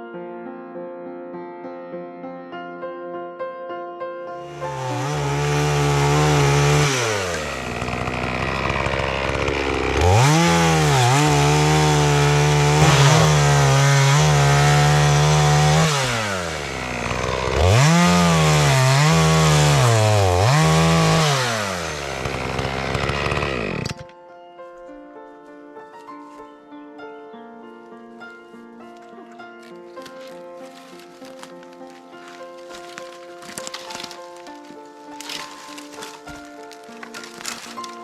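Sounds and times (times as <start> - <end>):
chainsaw revving and cutting wood: 4.4 - 24.1, 32.3 - 38.0.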